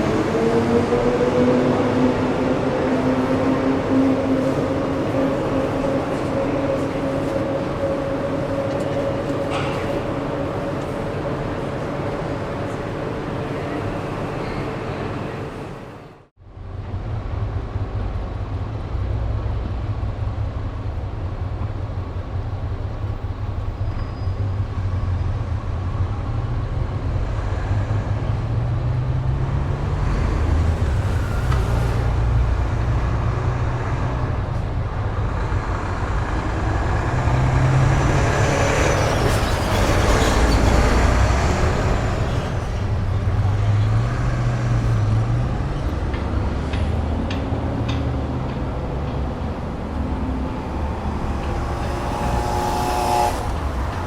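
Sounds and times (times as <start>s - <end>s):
road traffic rumble: 0.0s - 54.0s
faint high squeal: 23.8s - 25.4s.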